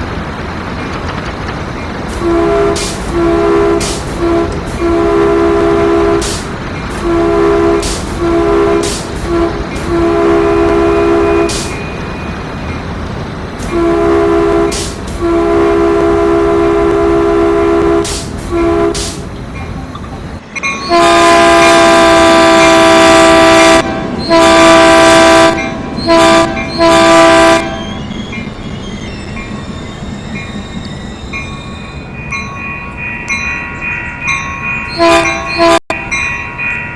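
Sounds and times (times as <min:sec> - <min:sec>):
train horn blasts: 0:02.1 - 0:11.7, 0:13.6 - 0:19.2, 0:20.8 - 0:27.8, 0:34.9 - 0:36.1.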